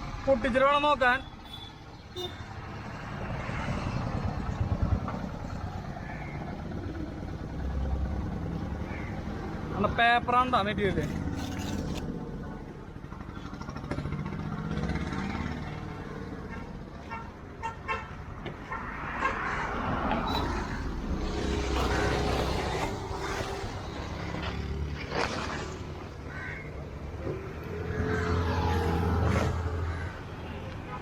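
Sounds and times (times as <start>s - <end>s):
road traffic passing: 0.0s - 31.0s
vehicle horn: 1.4s - 2.5s.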